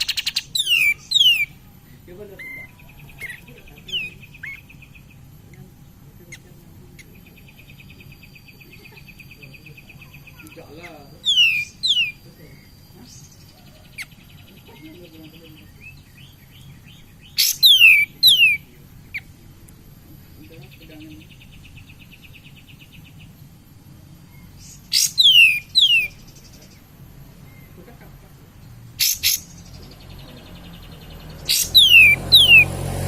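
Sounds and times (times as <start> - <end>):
bird chattering trills: 0.0 - 33.0
bird whistled song bursts: 17.2 - 18.6, 24.9 - 26.2, 31.3 - 32.8.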